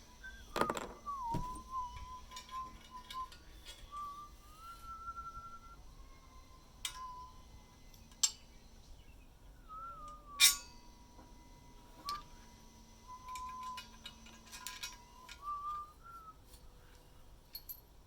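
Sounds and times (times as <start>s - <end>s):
person whistling a tune: 0.2s - 7.5s, 9.6s - 10.6s, 12.0s - 12.4s, 13.0s - 16.5s.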